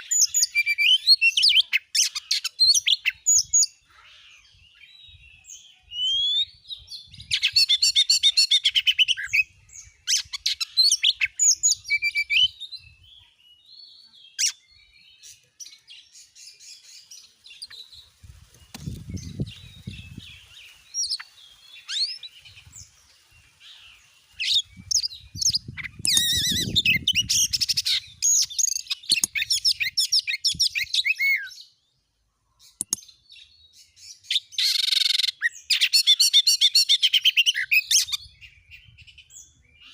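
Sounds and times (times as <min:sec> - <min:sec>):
magpie-robin singing: 0:00.0 - 0:23.0, 0:23.6 - 0:31.8, 0:32.6 - 0:39.9.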